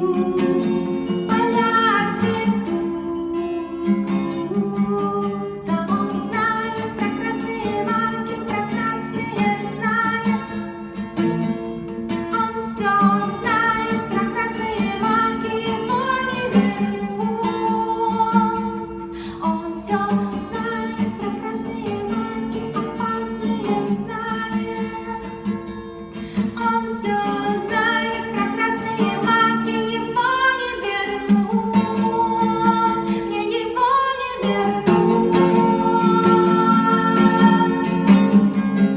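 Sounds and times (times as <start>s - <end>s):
acoustic guitar: 0.0s - 38.9s
person singing: 26.6s - 38.6s.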